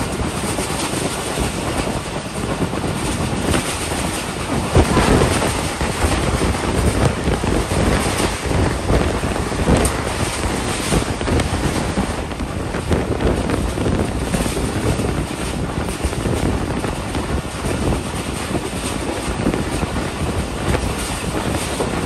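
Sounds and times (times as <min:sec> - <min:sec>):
train wheels rumbling on rails: 0:00.0 - 0:22.0
wind buffeting microphone: 0:00.0 - 0:22.0.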